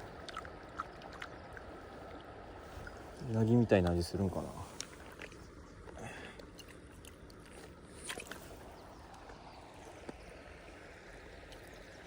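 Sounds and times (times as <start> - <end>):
faint outdoor background noise: 0.0 - 12.0.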